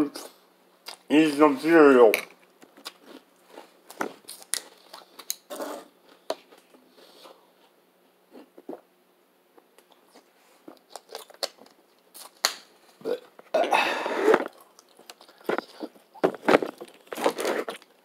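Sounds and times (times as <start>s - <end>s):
chewing crunchy cereal: 9.8s - 12.4s, 14.3s - 18.0s.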